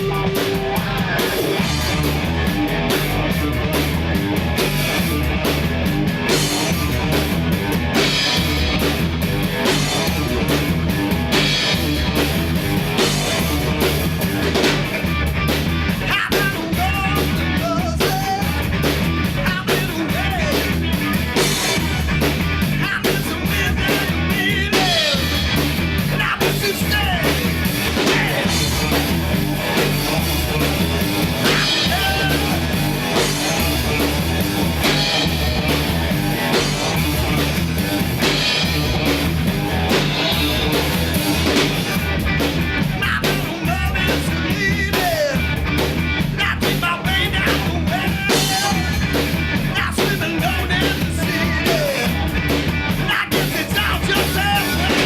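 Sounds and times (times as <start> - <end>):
person singing: 0.0 - 1.6, 26.1 - 28.7, 31.4 - 32.8, 43.0 - 45.5, 46.3 - 52.2, 53.0 - 55.0
rock band playing: 0.0 - 55.0.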